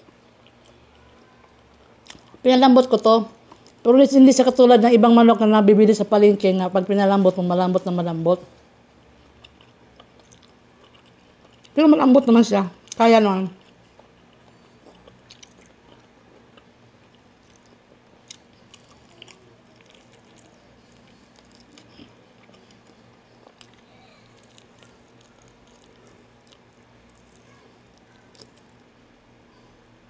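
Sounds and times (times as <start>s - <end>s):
faint chewing and mouth smacks: 0.0s - 2.4s, 3.4s - 3.8s, 9.0s - 11.8s, 12.8s - 29.0s
low steady hum: 0.0s - 30.0s.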